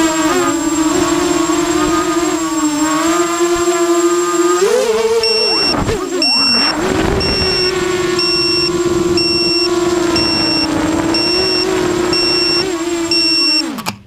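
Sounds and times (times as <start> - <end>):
quadcopter motors whining: 0.0 - 14.0
high beeper: 5.2 - 13.7.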